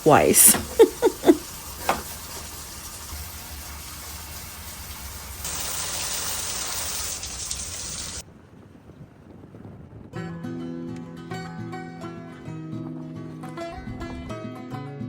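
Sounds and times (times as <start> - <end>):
water rushing: 0.0 - 8.2.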